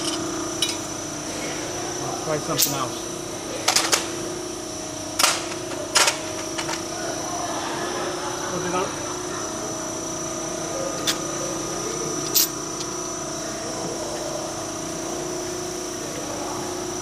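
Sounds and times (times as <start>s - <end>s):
shop machinery humming: 0.0s - 17.0s.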